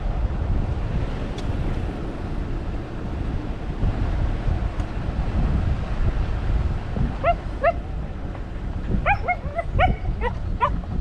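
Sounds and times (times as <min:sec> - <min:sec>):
wind rumbling on microphone: 0:00.0 - 0:11.0
dog yipping: 0:07.2 - 0:07.8, 0:09.0 - 0:10.8.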